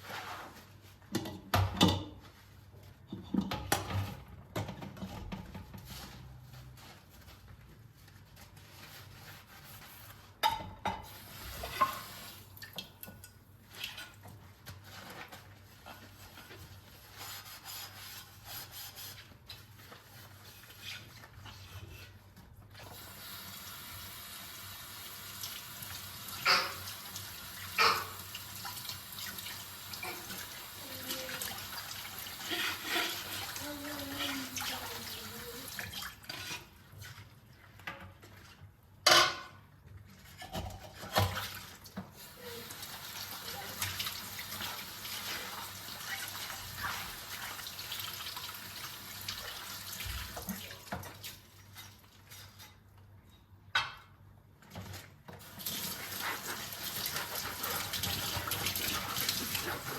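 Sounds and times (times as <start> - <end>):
dishes clinking: 39.0 - 39.6.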